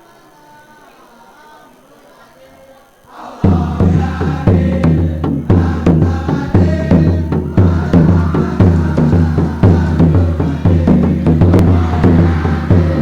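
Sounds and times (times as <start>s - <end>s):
boys' choir singing: 0.0s - 13.0s
heavy drum beat: 3.4s - 13.0s.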